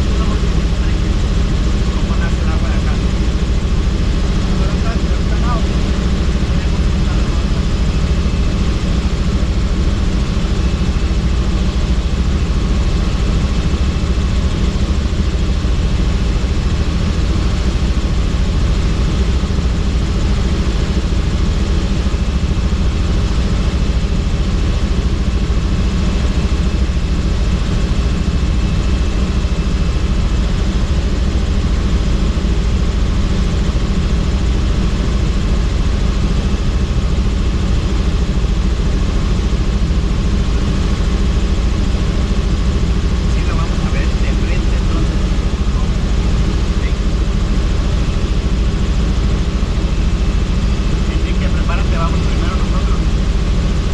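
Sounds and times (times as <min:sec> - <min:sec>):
helicopter rotor and engine noise: 0:00.0 - 0:53.9
faint high whine: 0:40.0 - 0:53.9.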